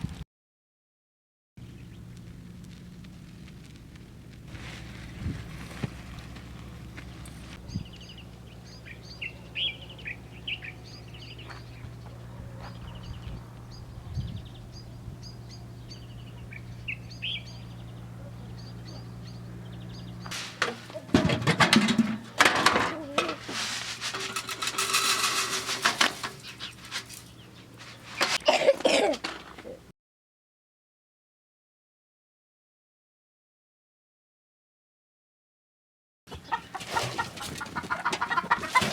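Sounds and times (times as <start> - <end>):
steady low hum: 1.6 - 22.5
small bird chirping: 7.6 - 20.3
scraping and knocking: 20.3 - 28.4.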